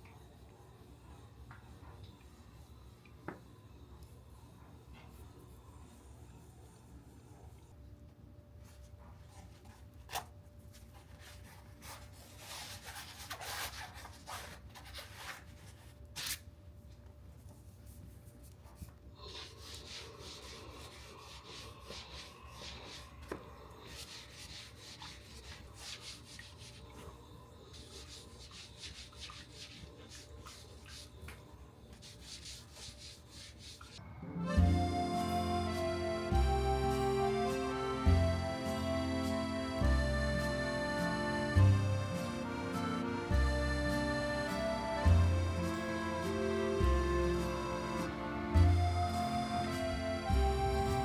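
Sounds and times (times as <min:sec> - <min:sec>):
rubbing and scraping: 0:10.8 - 0:16.4, 0:23.9 - 0:26.9, 0:31.9 - 0:34.0.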